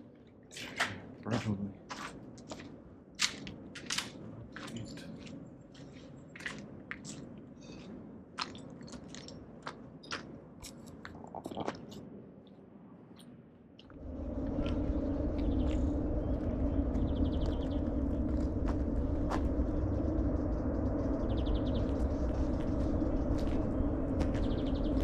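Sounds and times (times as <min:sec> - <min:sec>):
footsteps crunching on debris: 0:01.9 - 0:10.8
low rumbling noise: 0:13.9 - 0:25.0.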